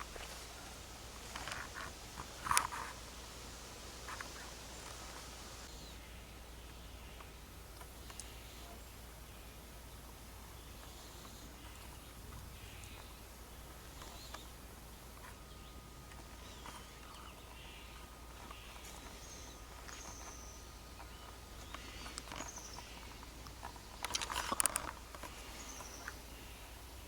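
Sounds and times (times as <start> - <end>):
rustling clicks: 0.0 - 5.6, 21.0 - 26.2.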